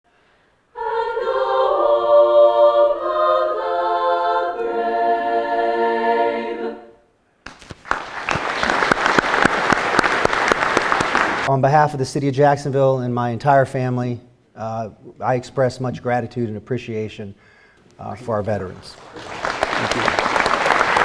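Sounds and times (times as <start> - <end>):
choir singing a cappella: 0.7 - 7.1
applause: 7.5 - 11.5, 18.6 - 21.0.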